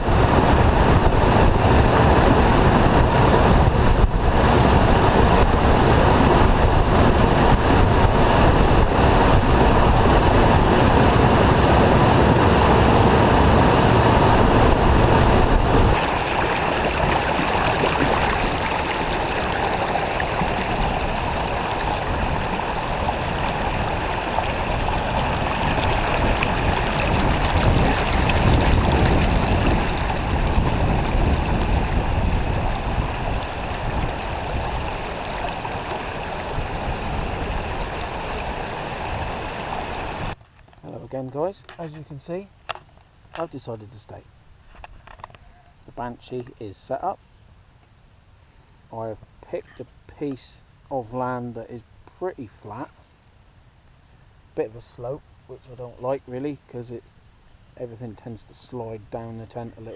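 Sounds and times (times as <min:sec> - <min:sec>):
waterfall rushing: 0:00.0 - 0:40.4
wind on microphone: 0:00.0 - 0:40.4.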